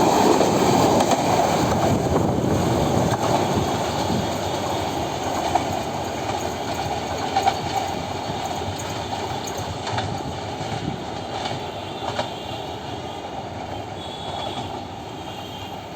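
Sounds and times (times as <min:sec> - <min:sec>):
wheels clacking over rail joints: 0:00.0 - 0:12.6
train wheels rumbling: 0:00.0 - 0:15.9.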